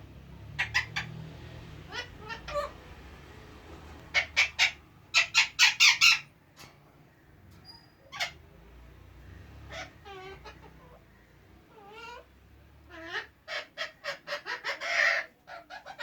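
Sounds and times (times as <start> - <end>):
parakeet calling: 0.4 - 3.4, 4.1 - 6.3, 9.4 - 16.0.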